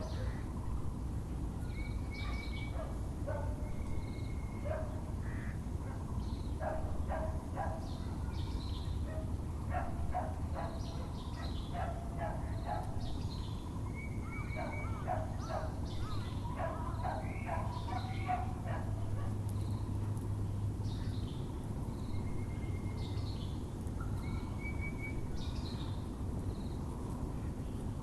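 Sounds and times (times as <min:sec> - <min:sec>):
birds calling: 0:01.7 - 0:20.0
dogs barking: 0:02.2 - 0:03.6, 0:04.6 - 0:05.0, 0:06.6 - 0:08.2, 0:09.0 - 0:13.1, 0:14.5 - 0:19.4.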